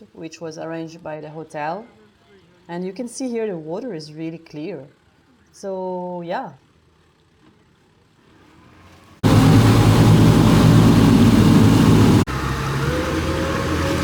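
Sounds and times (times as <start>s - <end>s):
speedboat engine running: 8.6s - 14.0s.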